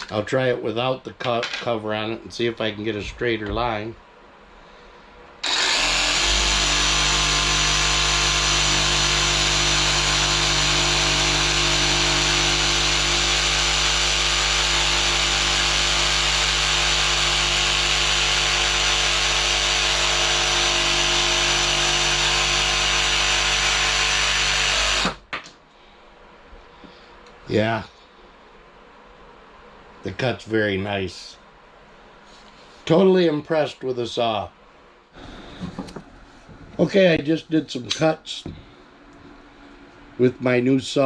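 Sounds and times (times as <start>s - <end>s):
jigsaw cutting wood: 5.4s - 25.2s.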